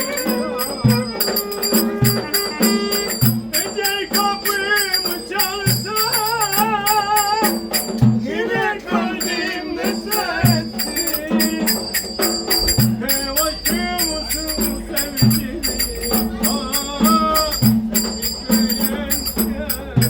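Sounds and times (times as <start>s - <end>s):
ornamented folk melody: 0.0s - 8.0s
jingling hand percussion: 0.0s - 20.0s.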